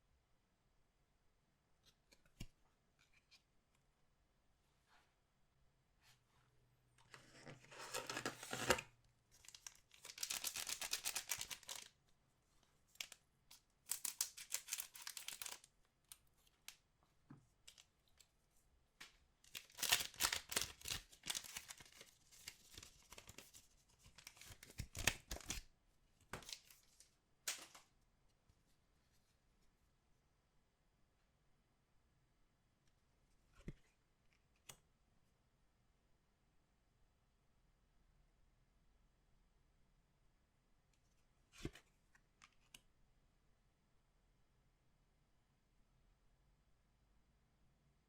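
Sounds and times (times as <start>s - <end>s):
wrappers tearing and crinkling: 9.5s - 11.9s, 13.9s - 15.6s, 19.5s - 22.1s.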